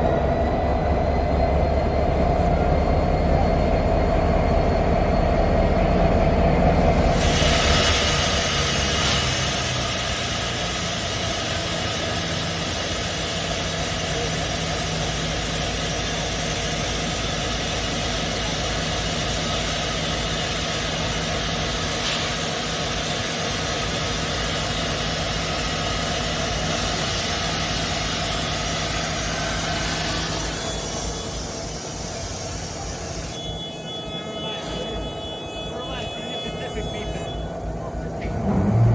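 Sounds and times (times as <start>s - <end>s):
low hum: 0.0s - 17.9s, 37.6s - 38.9s
locomotive engine running: 0.0s - 38.9s.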